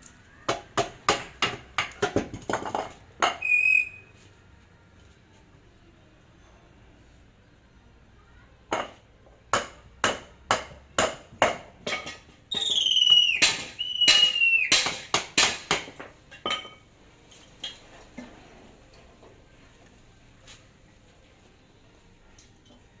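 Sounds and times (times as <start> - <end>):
hammer blows on metal: 12.5 - 15.9.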